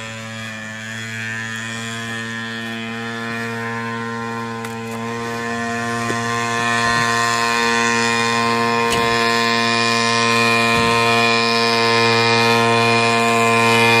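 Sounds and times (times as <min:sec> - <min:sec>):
small engine buzzing: 0:00.0 - 0:14.0.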